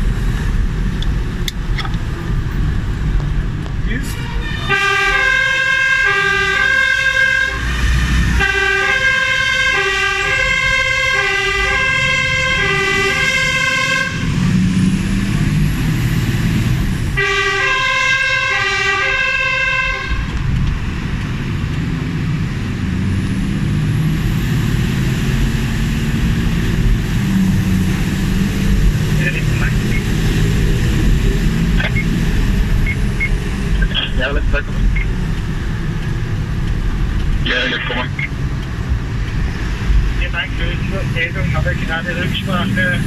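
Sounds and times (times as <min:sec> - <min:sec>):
truck engine and road noise: 0:00.0 - 0:43.0
fire engine two-tone siren: 0:04.2 - 0:14.4, 0:17.2 - 0:20.3.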